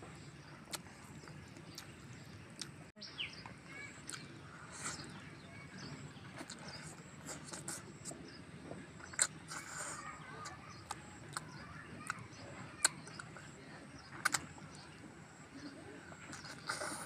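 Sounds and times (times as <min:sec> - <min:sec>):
person chewing food: 0:04.0 - 0:05.2, 0:06.4 - 0:08.3, 0:09.0 - 0:13.5, 0:14.1 - 0:14.9, 0:16.1 - 0:17.0
wet mouth clicks and smacks: 0:09.0 - 0:09.9, 0:14.2 - 0:14.5.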